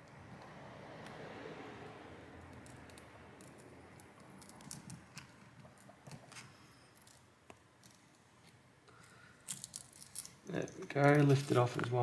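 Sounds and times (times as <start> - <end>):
tool clicking and scraping glass: 2.6 - 12.0.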